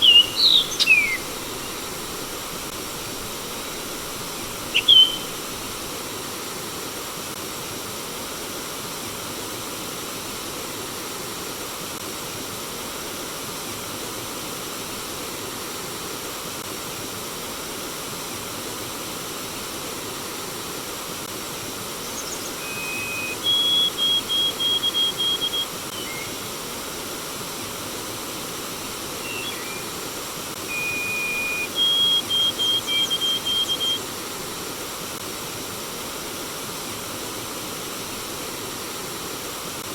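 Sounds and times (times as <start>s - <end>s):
bird singing: 0.0s - 5.8s, 22.0s - 26.4s, 29.2s - 30.0s, 30.7s - 34.1s
stream water flowing: 0.0s - 7.2s, 21.4s - 39.9s.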